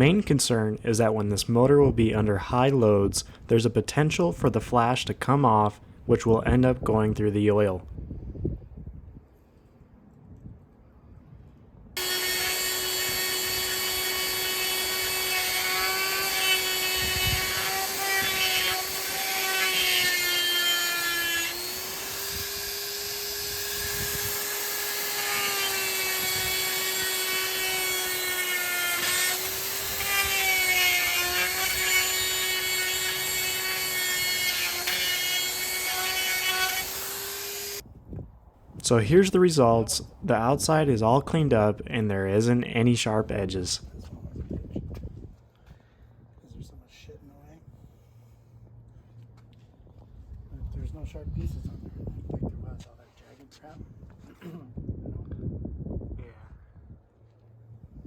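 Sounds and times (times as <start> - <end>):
die grinder whining: 12.0 - 37.8
grinder grinding metal: 12.0 - 37.8.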